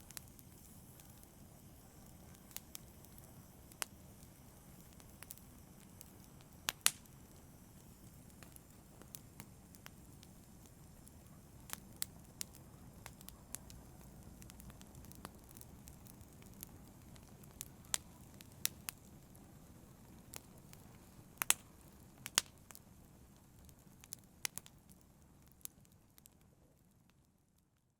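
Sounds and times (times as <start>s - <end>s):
fire crackling and popping: 0.0s - 27.9s
wood fire rumbling: 8.3s - 27.2s.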